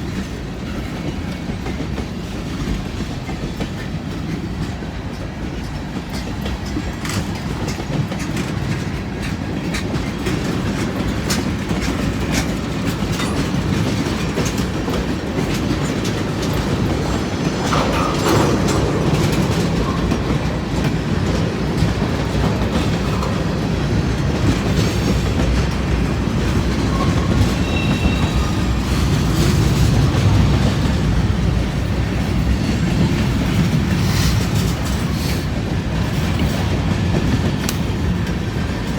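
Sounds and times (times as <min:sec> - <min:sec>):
freight train cars rumbling: 0:00.0 - 0:38.9
wheels clicking over rail joints: 0:00.0 - 0:38.9
faint wheel squeal: 0:26.9 - 0:28.7.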